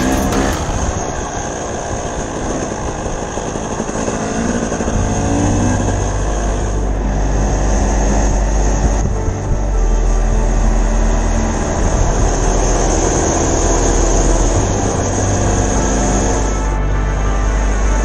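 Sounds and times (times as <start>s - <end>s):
dirt bike engine revving: 0.0s - 1.3s.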